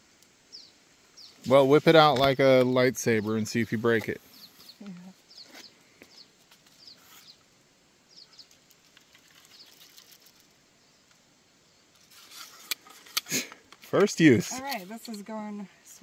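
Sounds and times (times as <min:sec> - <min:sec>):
faint bird chirps: 0:00.5 - 0:01.5, 0:04.2 - 0:11.9.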